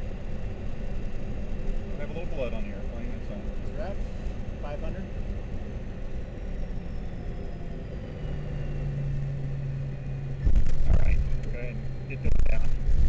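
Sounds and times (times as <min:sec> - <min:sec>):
faint high engine whine: 0:00.0 - 0:13.0
jet cockpit airflow and engine rumble: 0:00.0 - 0:13.0
low hum: 0:00.0 - 0:13.0.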